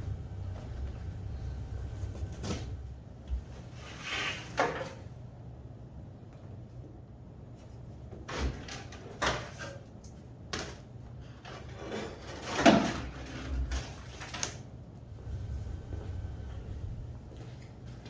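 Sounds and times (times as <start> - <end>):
low hum: 0.0 - 3.3, 15.1 - 18.0
metal parts clunking and scraping: 11.4 - 14.6.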